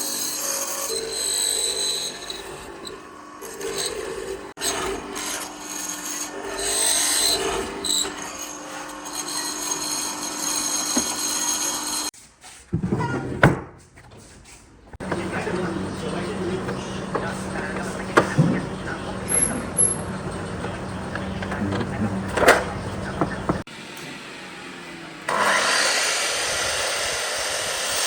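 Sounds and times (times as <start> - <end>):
tool rasping wood: 0.0 - 12.1.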